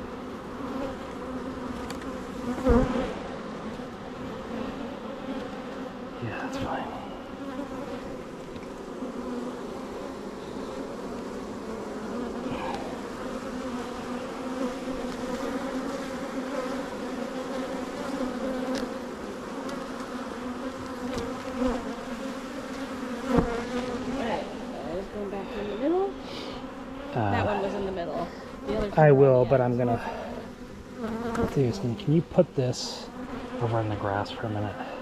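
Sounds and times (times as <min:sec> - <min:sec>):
honeybees buzzing: 0:00.0 - 0:35.0
hive frames knocking: 0:20.8 - 0:21.8, 0:22.7 - 0:23.9.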